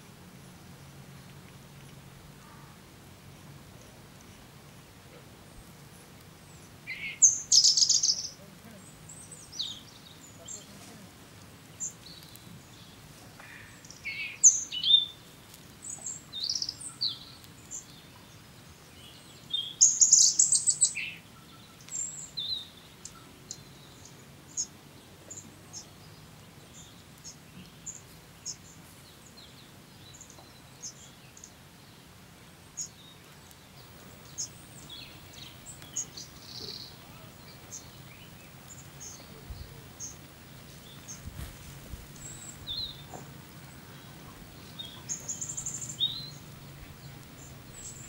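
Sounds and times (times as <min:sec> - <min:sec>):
small birds chirping: 0:00.6 - 0:48.0
rapid clicking bird chatter: 0:07.1 - 0:08.4, 0:33.8 - 0:48.0.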